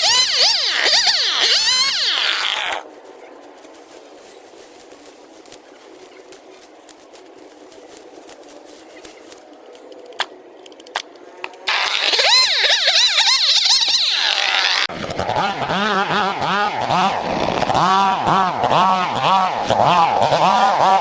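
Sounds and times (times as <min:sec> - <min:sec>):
two-stroke engine revving: 0:13.6 - 0:21.0.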